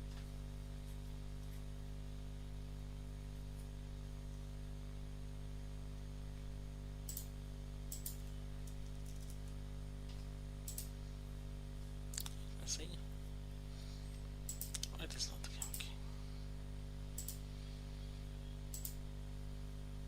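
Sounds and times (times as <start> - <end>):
low electrical hum: 0.0 - 20.0
computer keys clicking: 7.0 - 9.6, 10.7 - 10.9, 14.4 - 15.9, 17.1 - 17.4, 18.7 - 19.0.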